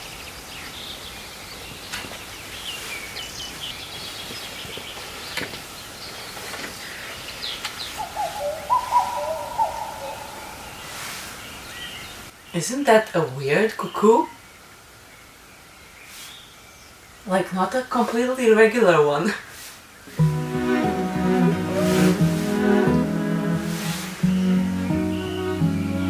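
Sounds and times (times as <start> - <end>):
small birds chirping: 0.0 - 18.9, 21.6 - 26.0
cuckoo calling: 7.0 - 12.2, 20.2 - 26.0.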